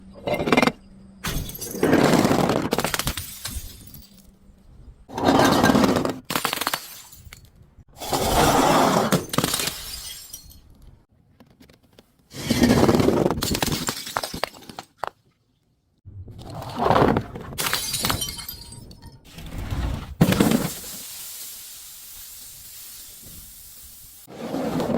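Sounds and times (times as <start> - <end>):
glass bottles shattering: 1.2 - 4.3, 5.4 - 7.5, 9.1 - 10.8, 13.4 - 14.9, 17.6 - 19.2.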